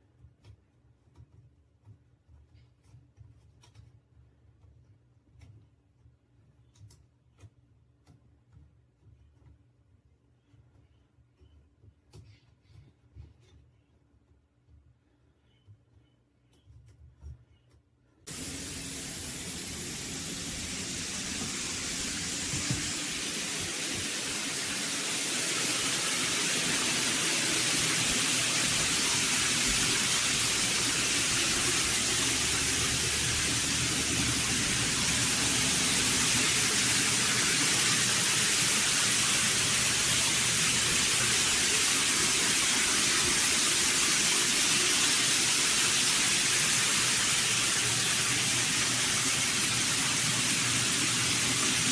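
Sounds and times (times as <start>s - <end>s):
shower water pouring: 18.3s - 51.9s.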